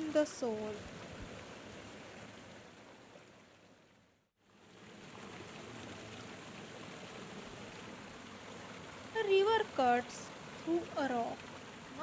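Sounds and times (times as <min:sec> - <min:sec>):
falling water rushing: 0:04.5 - 0:12.0.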